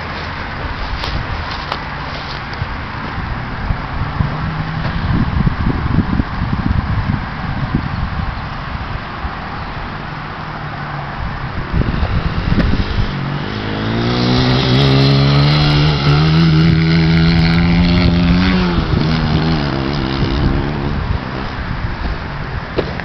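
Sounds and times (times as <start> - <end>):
rough rumbling noise: 0.0 - 23.0
dirt bike engine revving: 11.6 - 22.0.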